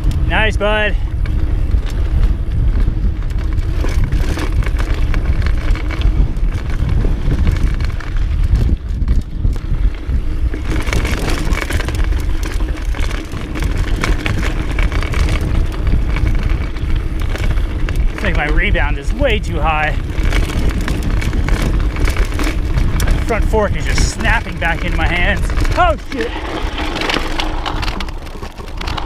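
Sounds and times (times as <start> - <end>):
tyre noise on dirt: 0.0 - 29.0
wind buffeting microphone: 0.0 - 29.0
bike clattering over rocks: 10.2 - 29.0.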